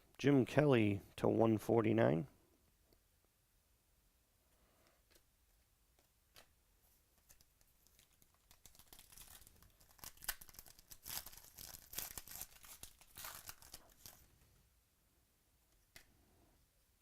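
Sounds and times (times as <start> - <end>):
card pack wrapper tearing: 7.8 - 14.2.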